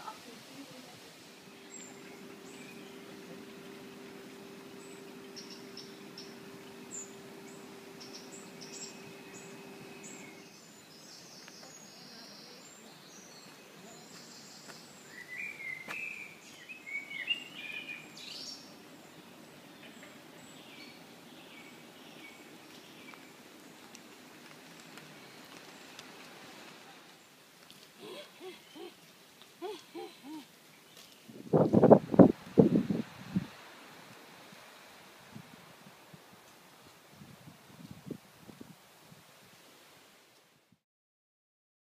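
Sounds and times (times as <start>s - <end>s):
woodland birdsong: 0.1s - 31.5s
low steady hum: 0.2s - 13.3s.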